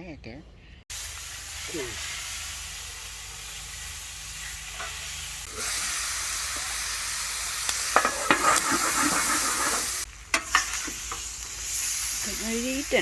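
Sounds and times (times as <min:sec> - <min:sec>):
chicken sizzling on a griddle: 0:00.9 - 0:13.0.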